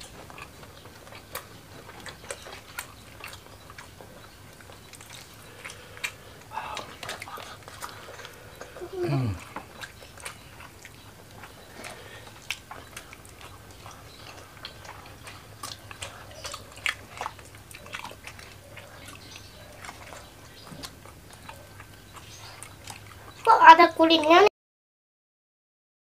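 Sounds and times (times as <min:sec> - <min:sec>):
chewing and crunching food: 0:00.0 - 0:24.5
faint steady hum: 0:00.0 - 0:24.5.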